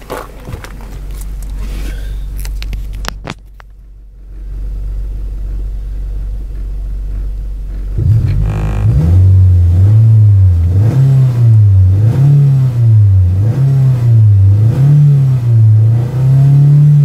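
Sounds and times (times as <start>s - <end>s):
car engine idling: 0.0s - 17.0s
sharp clicks and knocks: 2.4s - 4.5s.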